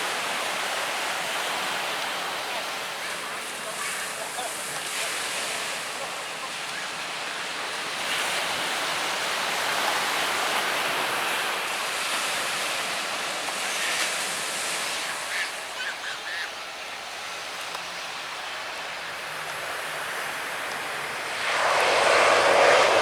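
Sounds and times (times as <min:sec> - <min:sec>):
surf breaking on beach: 0:19.2 - 0:23.0.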